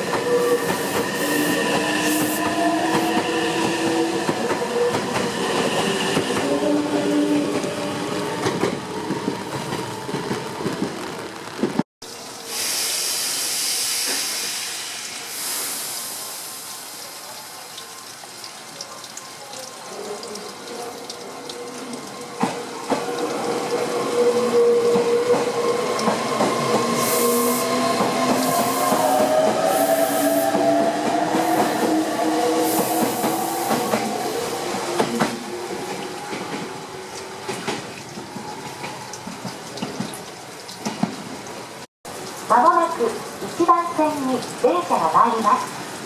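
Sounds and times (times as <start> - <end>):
loud hiss of air: 12.4 - 16.9.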